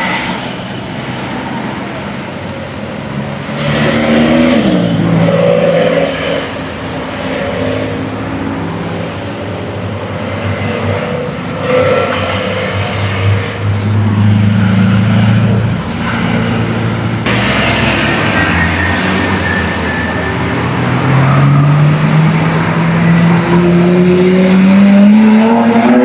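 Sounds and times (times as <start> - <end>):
car engine running: 13.7 - 18.9.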